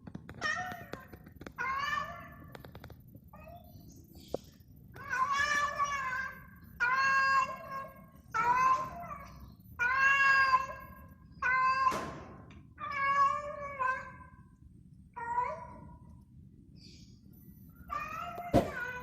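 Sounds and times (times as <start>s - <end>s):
cat meowing mournfully: 5.0s - 12.0s, 12.8s - 14.4s.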